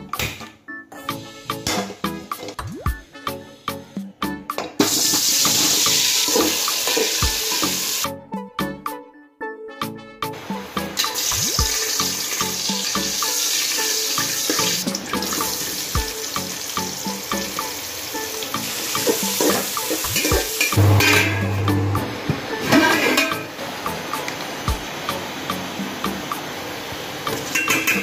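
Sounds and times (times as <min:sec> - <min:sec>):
background music: 0:00.0 - 0:28.0
onions sizzling in hot oil: 0:04.8 - 0:08.1, 0:11.0 - 0:20.8.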